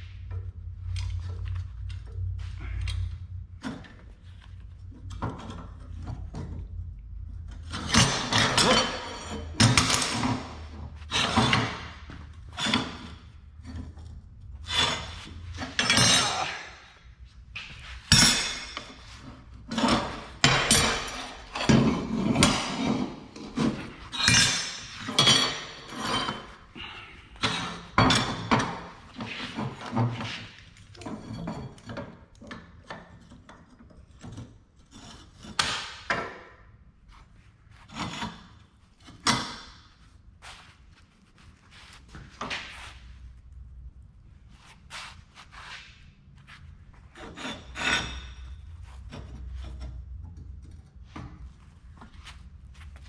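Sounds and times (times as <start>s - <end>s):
scrap metal pieces clanking: 7.7s - 13.2s, 14.7s - 16.9s, 17.6s - 32.8s.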